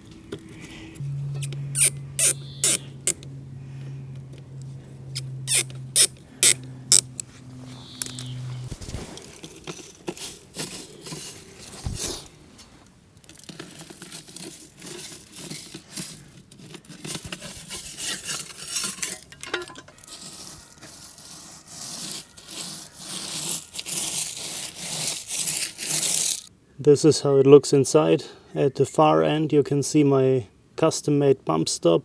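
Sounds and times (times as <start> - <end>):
rustling: 4.6 - 26.5
scraping of parts: 4.6 - 26.5.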